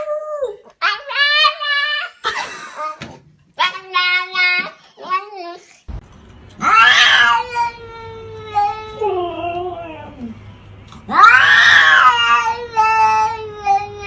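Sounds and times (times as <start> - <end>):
cat yowling: 6.6 - 10.1, 11.1 - 13.8.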